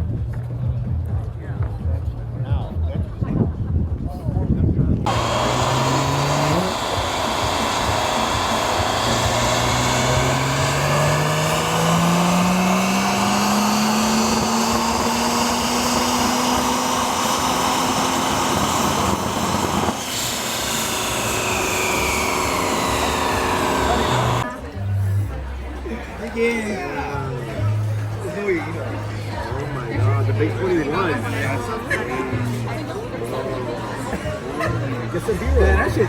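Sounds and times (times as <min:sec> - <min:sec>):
wind and road noise: 0:03.8 - 0:24.5
engine running: 0:05.1 - 0:26.2.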